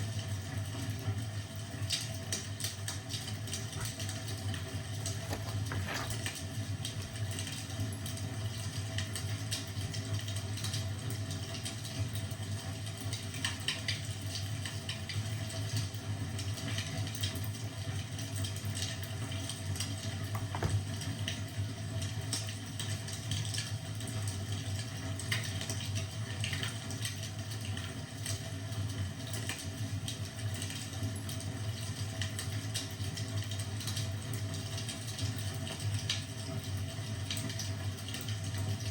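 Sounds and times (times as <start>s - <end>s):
wood fire crackling: 1.4s - 10.9s.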